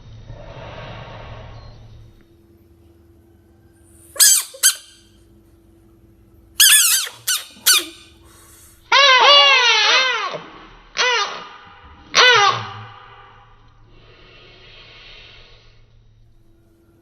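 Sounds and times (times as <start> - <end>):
bullfrog screaming: 6.6 - 13.5.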